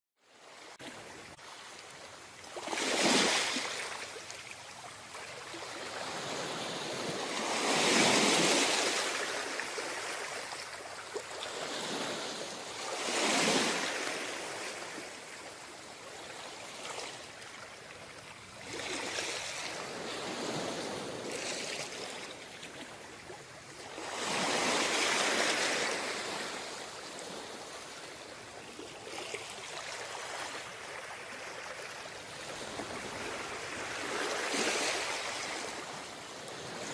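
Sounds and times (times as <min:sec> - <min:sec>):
sea waves washing onto beach: 0:00.8 - 0:36.9.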